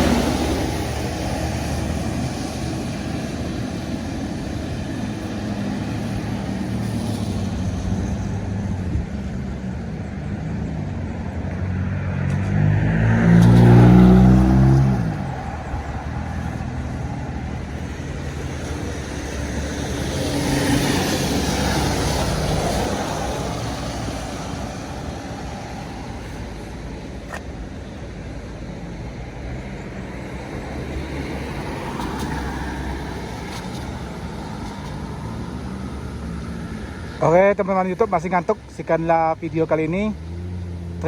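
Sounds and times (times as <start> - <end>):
vehicle passing close: 0.0 - 27.9, 29.2 - 41.0
vehicle engines running: 0.0 - 41.0.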